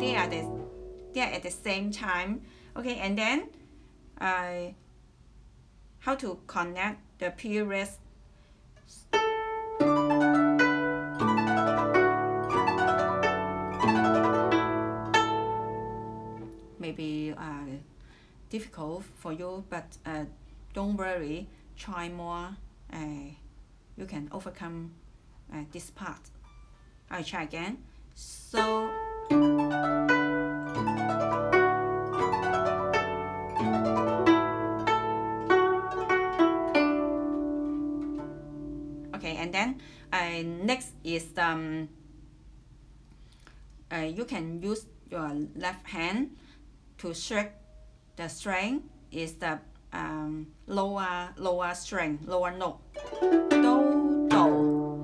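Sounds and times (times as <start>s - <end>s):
guzheng plucked notes: 0.0s - 3.9s, 9.0s - 17.3s, 28.3s - 42.3s, 51.7s - 55.0s.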